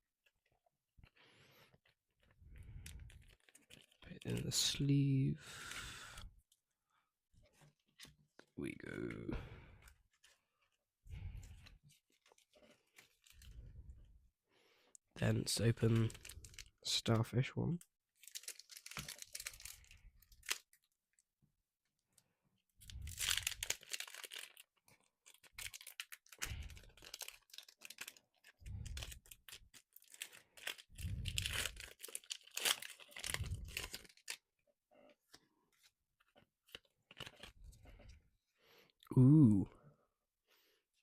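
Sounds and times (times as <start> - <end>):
foil wrapper tearing and crinkling: 2.9 - 4.7, 15.8 - 16.9, 18.2 - 21.2, 22.8 - 34.5, 36.6 - 37.6.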